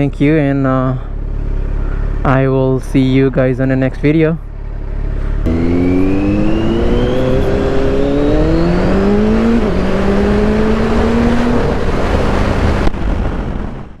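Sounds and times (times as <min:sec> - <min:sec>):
motorcycle engine accelerating: 0:04.5 - 0:13.4
wind rush: 0:05.4 - 0:14.0.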